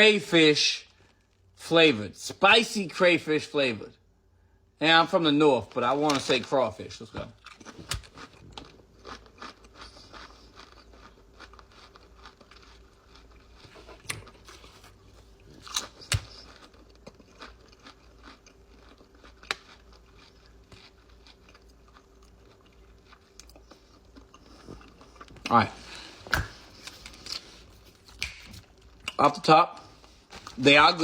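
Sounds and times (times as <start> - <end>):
person crunching potato chips: 5.7 - 26.1.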